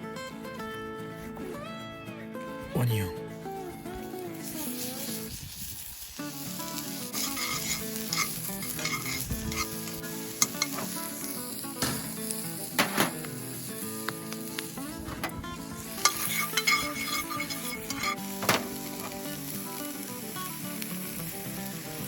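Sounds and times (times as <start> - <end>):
onion sizzling in a pan: 4.0 - 22.0
utensil scraping and tapping pan: 7.2 - 11.3, 16.0 - 19.2.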